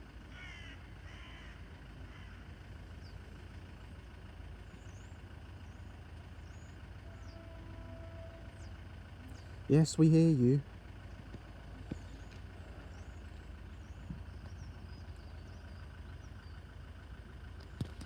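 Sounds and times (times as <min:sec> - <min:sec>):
crow cawing: 0:00.3 - 0:02.5.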